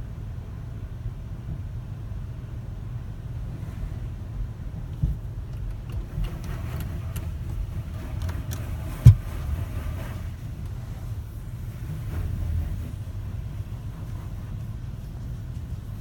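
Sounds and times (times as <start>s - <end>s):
car wash machinery rumbling: 0.0s - 16.0s
loud thump: 9.0s - 9.4s.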